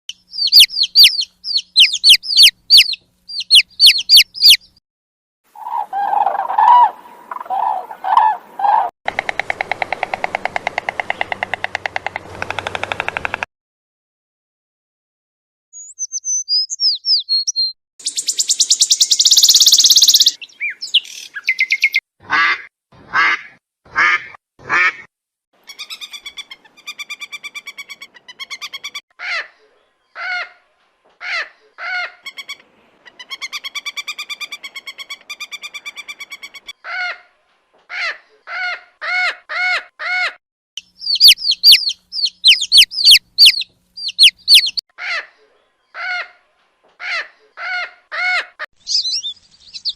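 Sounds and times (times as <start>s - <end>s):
harsh pitched bird calls: 0.1s - 4.8s, 5.5s - 8.9s, 15.8s - 22.6s, 37.9s - 49.9s
shrill bird chirps: 0.1s - 4.8s, 15.7s - 22.0s, 25.6s - 30.2s, 40.8s - 46.3s, 47.1s - 49.9s
thin bird whistles: 15.8s - 22.0s, 48.8s - 49.9s.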